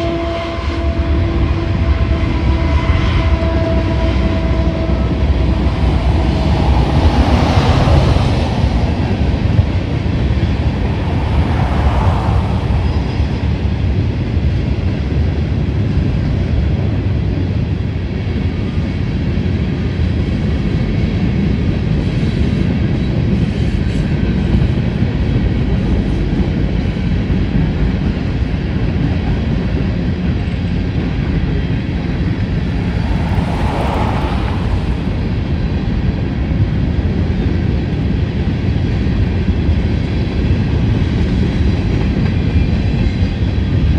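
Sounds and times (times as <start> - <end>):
freight train rolling past: 0.0 - 16.8, 29.2 - 43.9.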